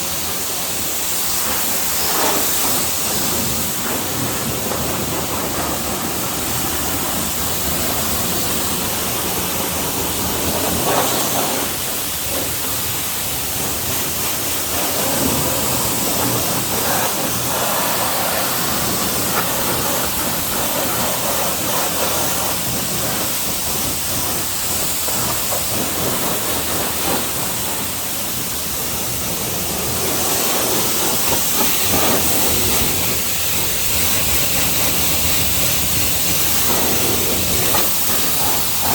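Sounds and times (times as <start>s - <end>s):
pressure washer spray hissing: 0.0s - 38.9s.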